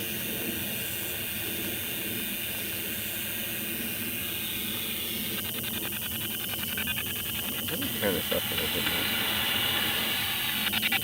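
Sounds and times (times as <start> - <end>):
radio static hiss: 4.3 - 11.0.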